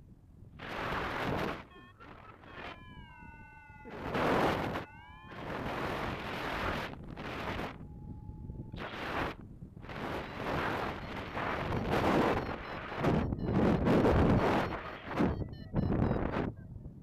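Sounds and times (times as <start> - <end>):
wind buffeting microphone: 0.4 - 17.0
drawn-out high calls: 1.6 - 6.7.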